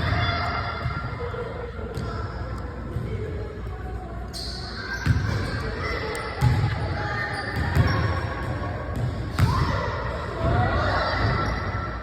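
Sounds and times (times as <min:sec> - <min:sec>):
basketball bouncing on hard court: 0:05.0 - 0:05.5, 0:07.6 - 0:08.1, 0:09.0 - 0:09.8.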